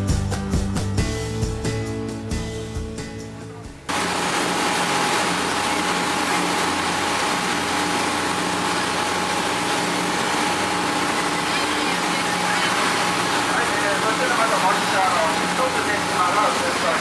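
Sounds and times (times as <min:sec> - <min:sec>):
background music: 0:00.0 - 0:03.9
boat engine running: 0:00.0 - 0:17.0.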